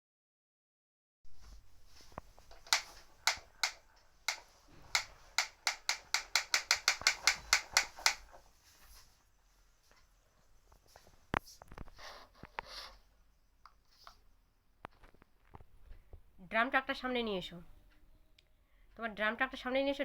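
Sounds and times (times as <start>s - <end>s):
plastic ratchet clicking: 5.0s - 8.2s.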